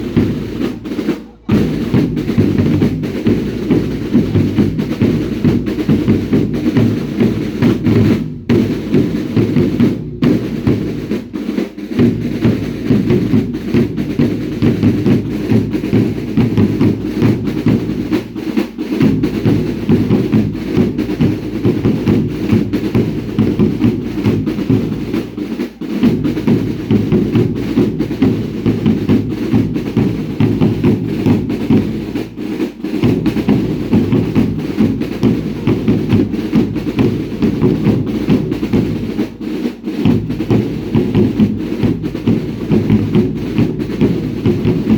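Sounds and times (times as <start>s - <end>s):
drums playing fast beat: 0.0s - 44.9s.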